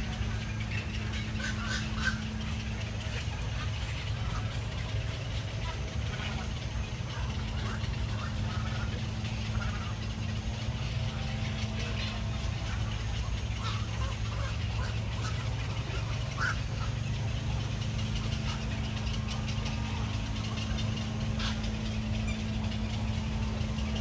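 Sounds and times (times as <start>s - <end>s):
steady low hum: 0.0s - 24.0s
short bird calls: 11.6s - 24.0s.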